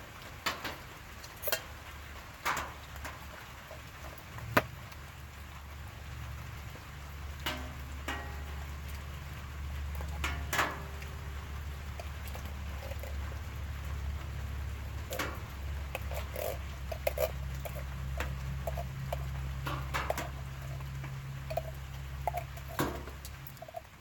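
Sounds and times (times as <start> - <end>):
campfire crackling and popping: 0.0 - 24.0
steady low hum: 5.7 - 24.0.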